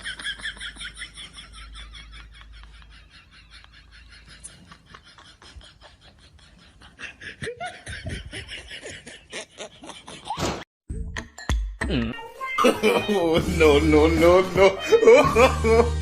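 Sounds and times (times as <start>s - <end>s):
breathy laughter: 0.0s - 10.4s.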